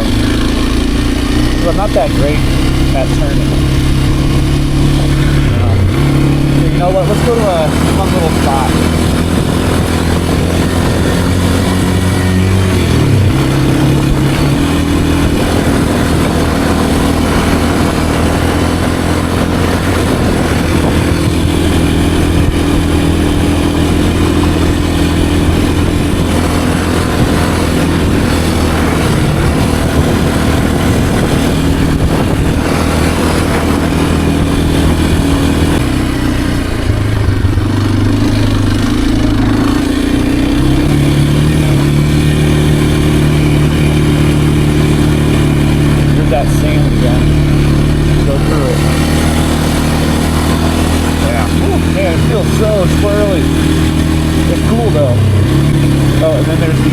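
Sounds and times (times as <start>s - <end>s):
dirt bike engine running: 0.0s - 56.9s.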